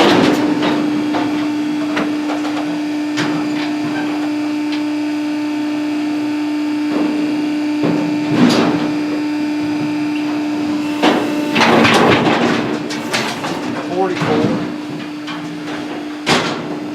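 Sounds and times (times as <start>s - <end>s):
steady machine hum: 10.4s - 14.9s
metal gates clanging and rattling: 12.9s - 14.2s.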